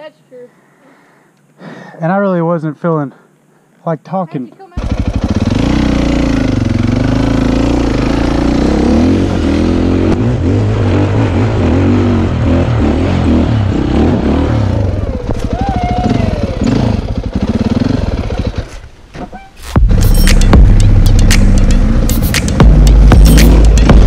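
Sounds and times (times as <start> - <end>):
dirt bike engine revving: 4.8 - 18.8, 19.6 - 24.0.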